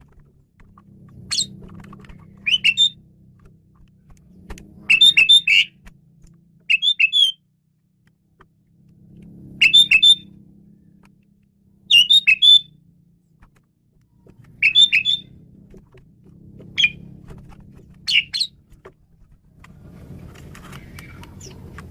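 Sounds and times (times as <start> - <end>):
bird whistled calls: 1.3 - 1.5, 2.3 - 3.0, 4.8 - 5.8, 6.7 - 7.4, 9.6 - 10.3, 11.9 - 12.7, 14.6 - 15.4, 16.7 - 17.0, 18.1 - 18.6.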